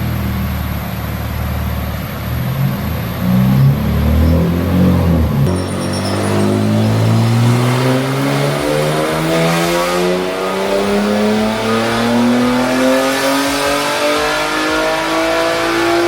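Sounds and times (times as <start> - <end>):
car engine revving at full throttle: 0.0 - 16.0.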